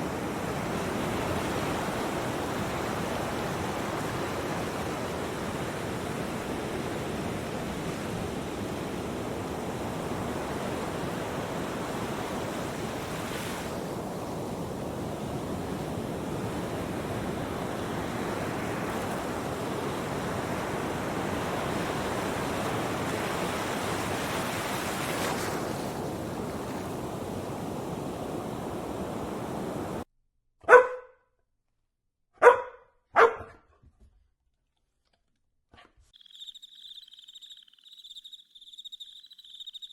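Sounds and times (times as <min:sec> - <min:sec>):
dog barking: 0:30.6 - 0:31.3, 0:32.4 - 0:33.8.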